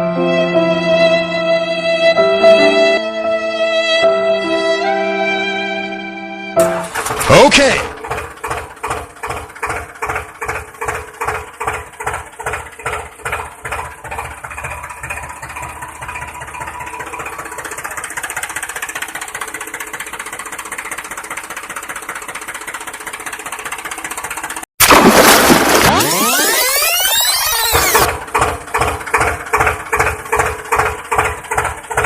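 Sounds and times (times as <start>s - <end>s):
vehicle engine chugging: 6.6s - 24.7s, 26.2s - 32.0s.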